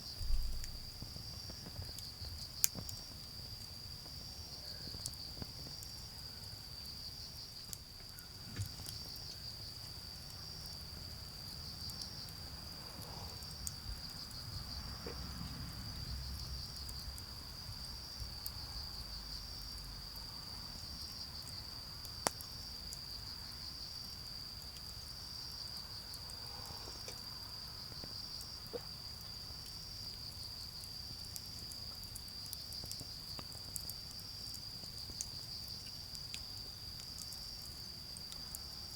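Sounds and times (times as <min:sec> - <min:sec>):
charcoal fire crackling and popping: 0:00.1 - 0:38.9
distant traffic rumble: 0:11.0 - 0:20.0.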